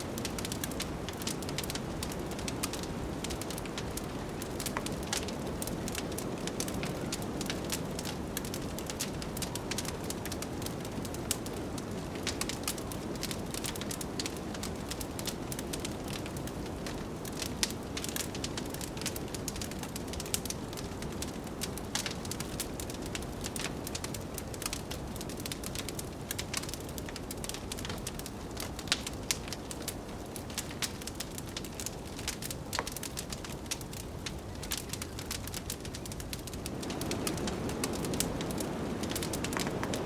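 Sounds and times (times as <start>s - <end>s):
wood fire crackling and popping: 0.0s - 40.0s
blizzard wind rushing: 36.3s - 40.0s.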